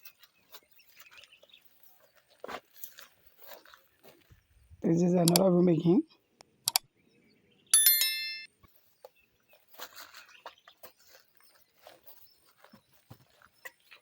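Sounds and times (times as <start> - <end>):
bright metallic bell-like ring: 7.8 - 8.5
faint taps and scuffs: 9.0 - 14.0.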